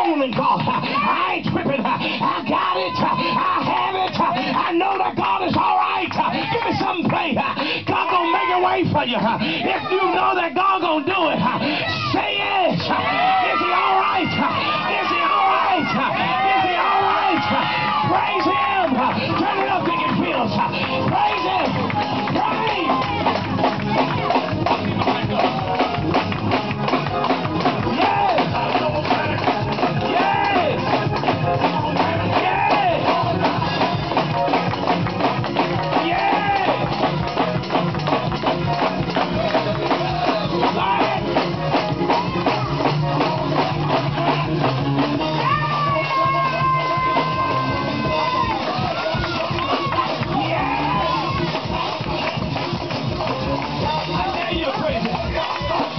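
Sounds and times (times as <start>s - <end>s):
band playing praise music: 0.0s - 55.9s
voices singing: 11.1s - 55.9s
guitar: 11.7s - 55.9s
drum kit fast beat: 12.7s - 55.9s.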